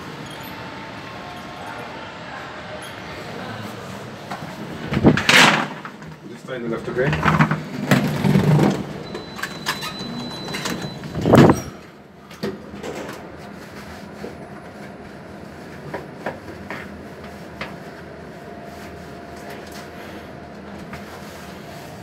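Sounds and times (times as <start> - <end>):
lift doors shutting: 0.0 - 13.4
lift humming: 0.0 - 22.0.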